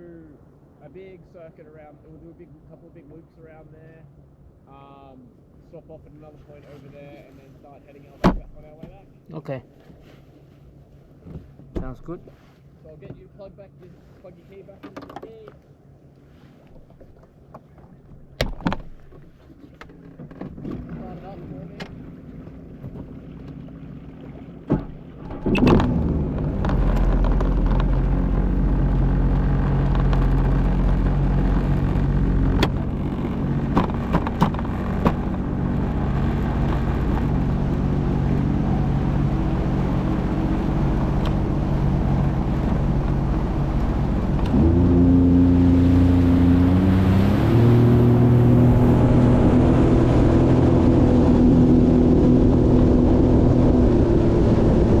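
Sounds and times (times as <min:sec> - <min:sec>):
jet ski engine running: 0:16.9 - 0:55.0
sharp knocks: 0:33.6 - 0:35.4.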